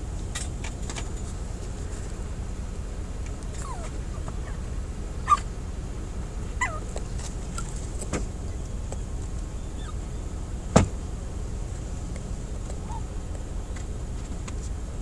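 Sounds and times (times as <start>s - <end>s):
steady low rumble: 0.0s - 15.0s
seagulls crying: 3.5s - 5.6s, 6.5s - 7.7s, 8.4s - 10.5s, 12.8s - 13.2s.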